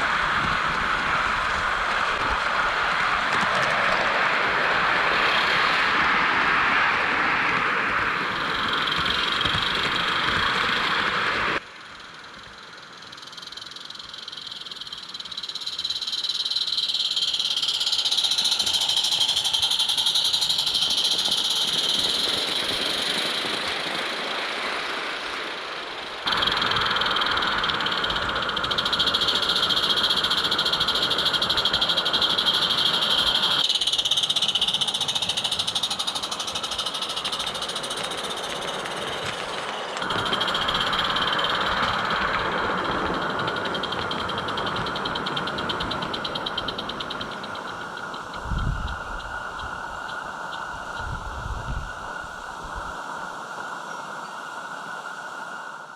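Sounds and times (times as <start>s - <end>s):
model steam locomotive running: 0.0s - 53.7s
high-pitched chirring: 13.1s - 23.5s, 26.3s - 39.4s.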